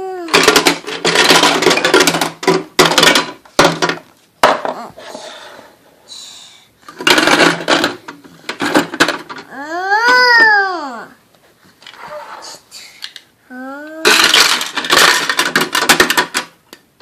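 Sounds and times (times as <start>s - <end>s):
hard objects clattering and rattling: 0.3s - 5.5s, 6.8s - 10.6s, 14.0s - 16.8s.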